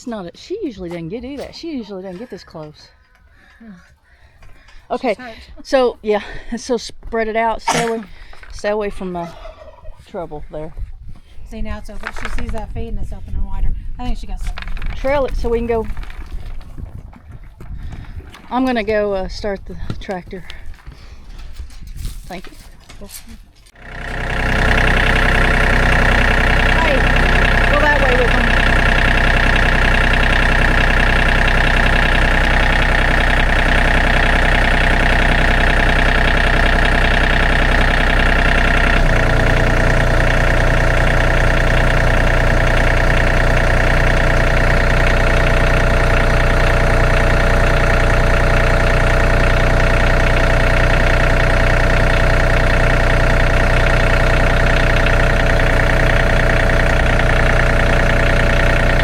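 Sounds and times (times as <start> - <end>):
tractor engine running: 0.0 - 9.2, 10.0 - 22.5, 23.1 - 59.0.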